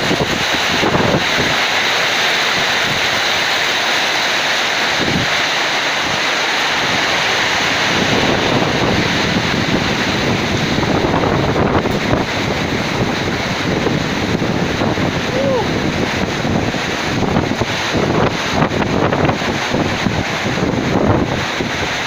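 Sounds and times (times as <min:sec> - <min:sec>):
wind gusts buffeting microphone: 0:00.0 - 0:03.8, 0:04.7 - 0:22.0
heavy rain pouring: 0:00.0 - 0:22.0.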